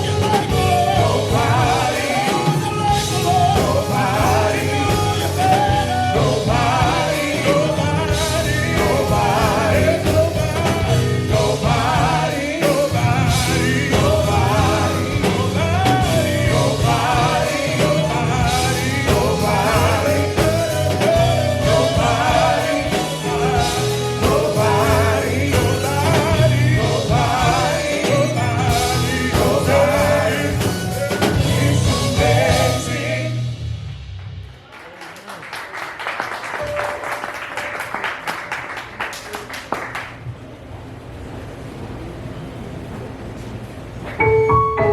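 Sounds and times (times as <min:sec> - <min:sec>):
gospel quartet singing with band: 0:00.0 - 0:33.9.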